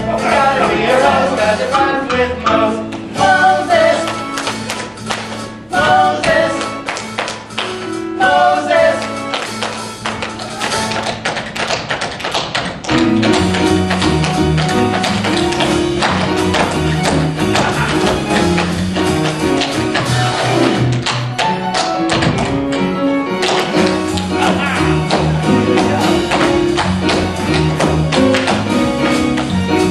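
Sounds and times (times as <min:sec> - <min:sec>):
musical accompaniment: 0:00.0 - 0:29.9
tap shoes stepping: 0:09.6 - 0:28.7
bass line: 0:12.9 - 0:21.3, 0:23.7 - 0:29.9.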